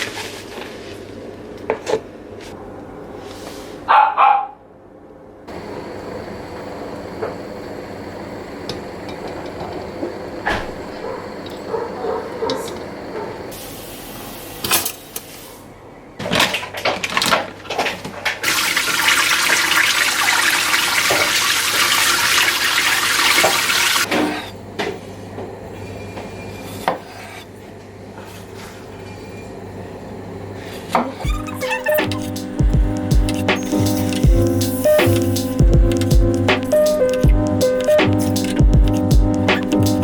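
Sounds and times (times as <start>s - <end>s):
water running: 18.4s - 24.1s, 31.2s - 40.0s.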